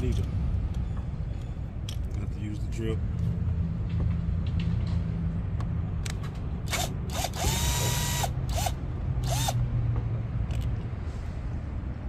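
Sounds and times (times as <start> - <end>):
power drill spinning: 6.7 - 9.6.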